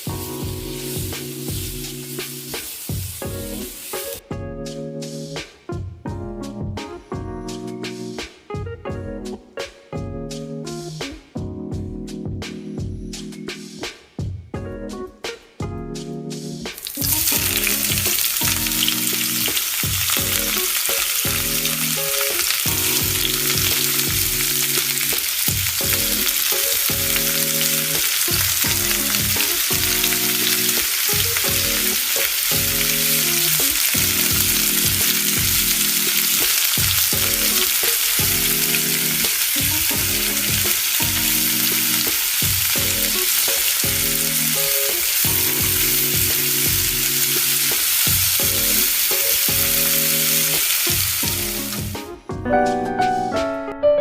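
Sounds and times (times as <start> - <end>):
food sizzling over campfire: 0.0 - 4.2, 16.8 - 52.0.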